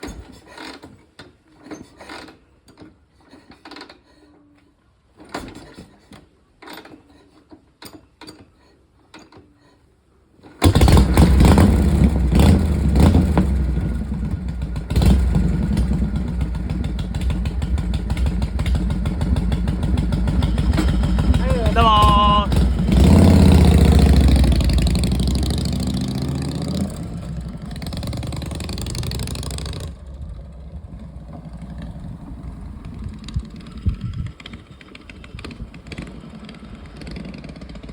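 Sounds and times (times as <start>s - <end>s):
motorcycle engine starting and running: 10.6s - 37.9s.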